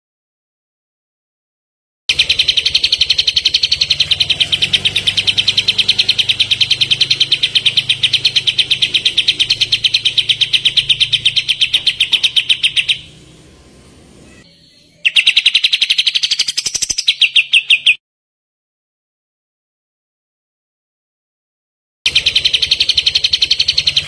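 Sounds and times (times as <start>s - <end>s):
bird singing rapid repeated notes: 2.1s - 18.0s, 22.1s - 24.0s.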